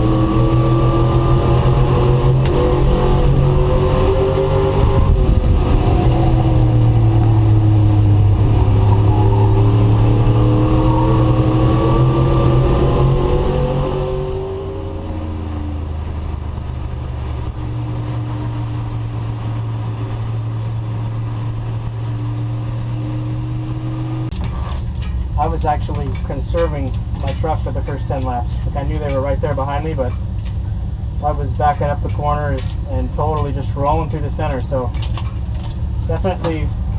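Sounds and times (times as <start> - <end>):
race truck engine at high revs: 0.0 - 29.2.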